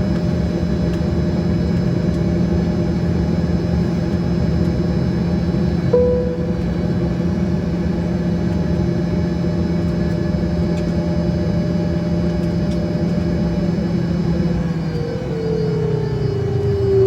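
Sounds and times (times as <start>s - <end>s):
jet engines humming and whining: 0.0s - 17.0s.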